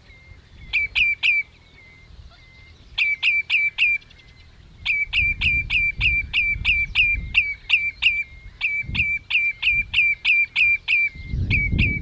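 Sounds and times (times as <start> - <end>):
redshank calling: 0.0 - 12.0.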